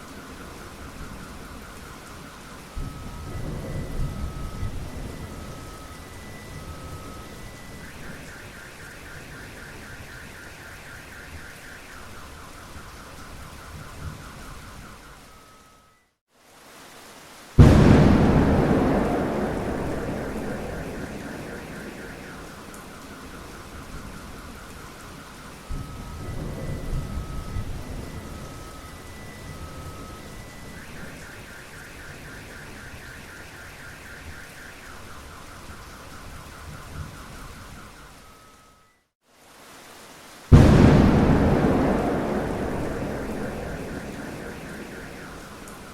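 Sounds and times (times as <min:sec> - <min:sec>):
steady rain: 0:00.0 - 0:45.9
loud thunderclap: 0:17.6 - 0:23.0, 0:40.5 - 0:45.9
car alarm beeping and chirping: 0:17.7 - 0:26.4, 0:40.6 - 0:45.9.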